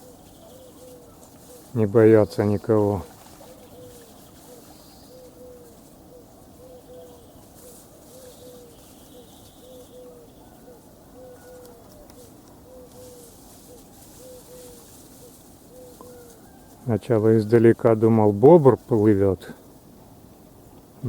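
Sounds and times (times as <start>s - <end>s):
pigeons cooing: 0.0s - 19.6s.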